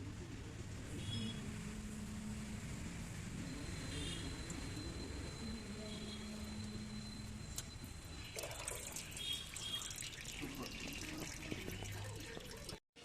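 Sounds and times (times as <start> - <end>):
liquid running and splashing: 8.4 - 12.8.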